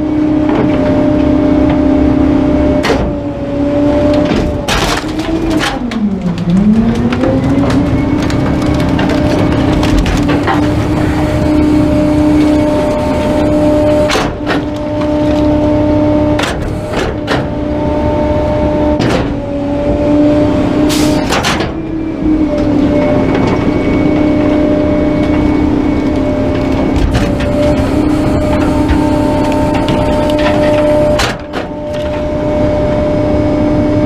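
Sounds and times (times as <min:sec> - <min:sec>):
garbage truck engine hum: 0:00.0 - 0:34.0
sharp knocks and clanks: 0:04.1 - 0:12.8, 0:16.3 - 0:17.6, 0:19.0 - 0:19.4, 0:26.9 - 0:32.3.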